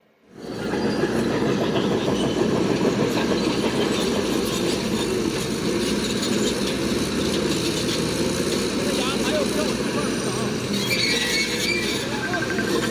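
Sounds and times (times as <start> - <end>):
diesel engine running: 0.3 - 12.9
continuous rattling clatter: 0.4 - 12.9.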